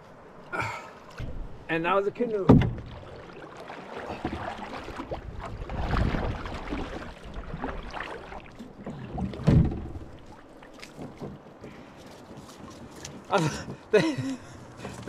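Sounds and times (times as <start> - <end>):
water sloshing: 0.2 - 15.0
canoe hull shifting: 1.1 - 14.0, 14.6 - 15.0
heavy knock of canoe hull: 2.5 - 3.0, 9.3 - 10.2.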